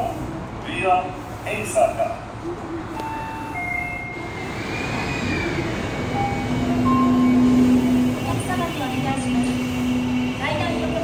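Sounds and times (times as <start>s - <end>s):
electric train motor whine: 3.0s - 11.0s.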